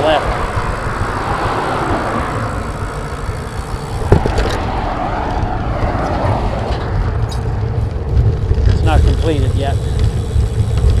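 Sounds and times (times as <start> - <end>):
bicycle road noise rumbling: 0.0 - 11.0
wind buffeting microphone: 0.0 - 11.0
bike jolting over bump: 2.4 - 11.0.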